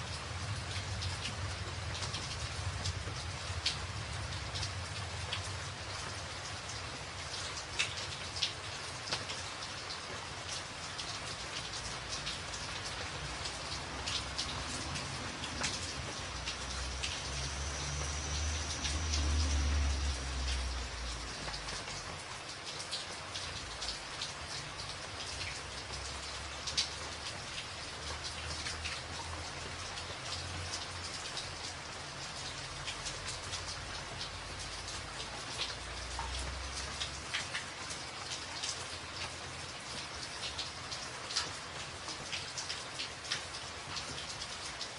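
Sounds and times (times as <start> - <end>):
heavy rain on a tin roof: 0.0 - 44.9.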